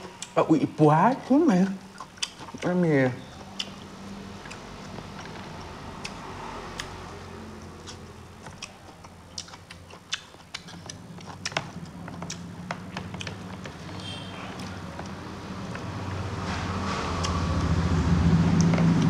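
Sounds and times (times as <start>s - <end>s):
person chewing food: 0.0s - 0.4s, 1.1s - 19.0s.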